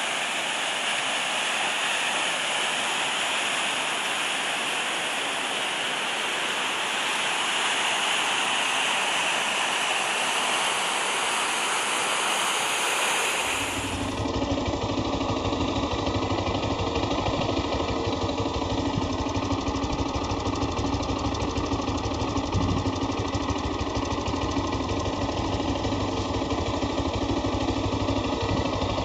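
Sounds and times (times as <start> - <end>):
motorcycle engine idling: 13.8 - 29.0.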